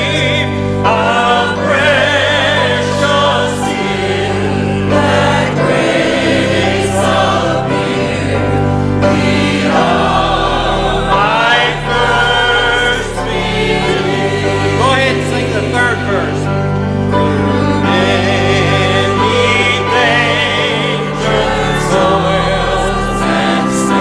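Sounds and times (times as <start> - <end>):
congregation singing a hymn: 0.0 - 24.0
sustained low instrumental notes: 0.0 - 24.0.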